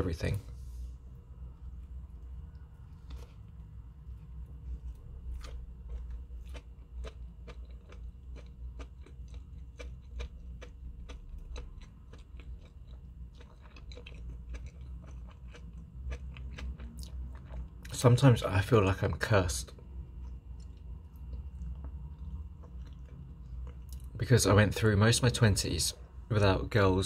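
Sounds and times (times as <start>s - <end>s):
person chewing: 1.8s - 17.9s, 19.7s - 24.1s.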